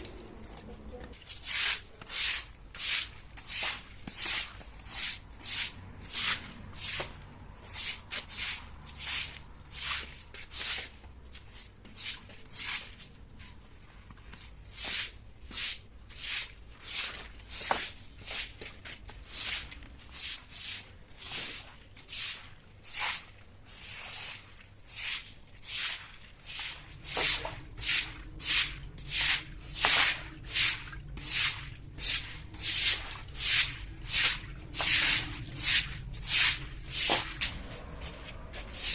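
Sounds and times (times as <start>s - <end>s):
brush scrubbing hard surface: 1.2s - 13.1s, 14.4s - 38.9s.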